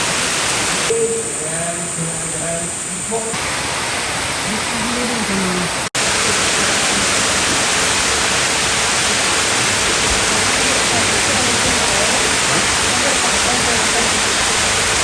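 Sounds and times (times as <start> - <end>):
waterfall rushing: 0.0 - 1.0, 2.7 - 15.0
faint voices: 9.0 - 15.0.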